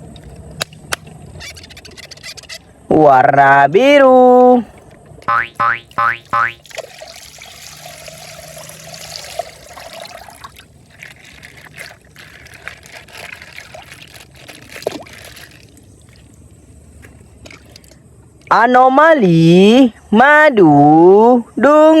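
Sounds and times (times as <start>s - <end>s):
water pouring and trickling: 6.0s - 18.0s
plastic bag crinkling: 9.0s - 17.8s.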